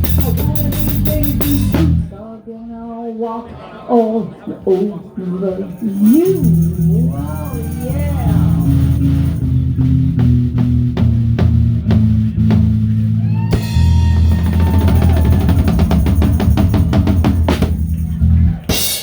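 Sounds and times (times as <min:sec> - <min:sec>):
live rock band playing: 0:00.0 - 0:02.1, 0:05.9 - 0:19.0
held bass note: 0:06.0 - 0:18.7.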